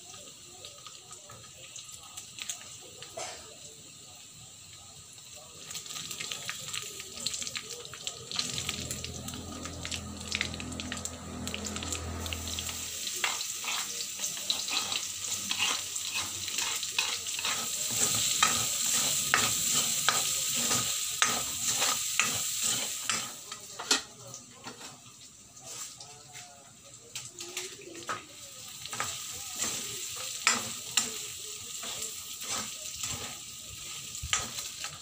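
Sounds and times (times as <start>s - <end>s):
onion and garlic sizzling in oil: 0.0s - 35.0s
wooden spatula scraping a wok: 11.5s - 24.0s, 31.8s - 33.4s.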